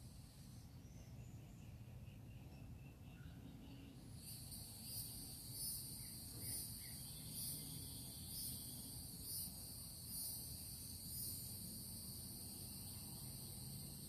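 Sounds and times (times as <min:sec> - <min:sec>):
insect chorus trilling: 0:03.8 - 0:14.0.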